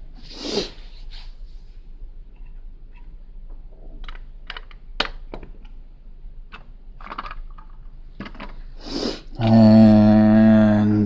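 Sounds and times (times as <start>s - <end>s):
plastic bricks clicking and rattling: 6.5s - 8.6s.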